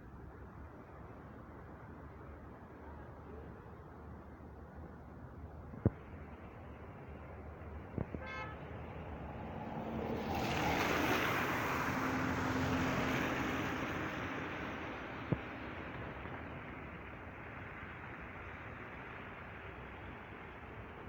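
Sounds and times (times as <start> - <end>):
car passing by: 8.7 - 20.0.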